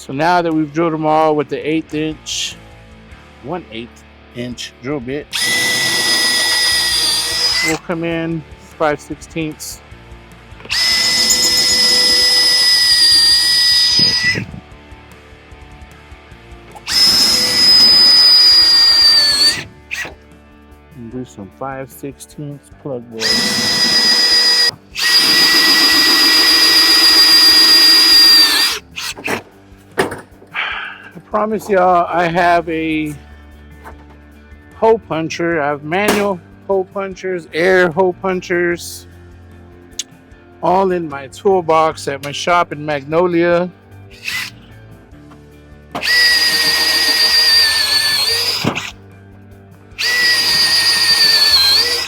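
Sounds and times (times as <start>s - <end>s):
electric drill whining: 5.3s - 7.8s, 10.6s - 14.6s, 16.7s - 20.2s, 23.2s - 29.4s, 44.2s - 44.6s, 46.0s - 49.0s, 50.0s - 52.0s.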